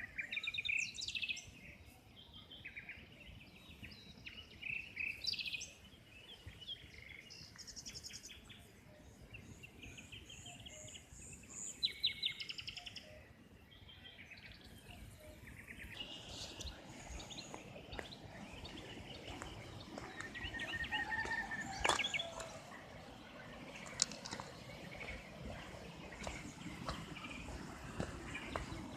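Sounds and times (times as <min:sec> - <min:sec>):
small birds chirping and trilling: 0:00.0 - 0:28.9
steady background noise: 0:14.6 - 0:28.9.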